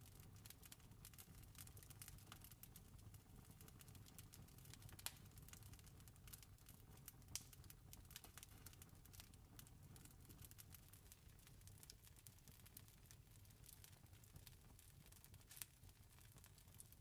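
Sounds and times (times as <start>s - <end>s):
wood fire crackling: 0.0s - 17.0s
sharp fire snaps: 0.4s - 17.0s.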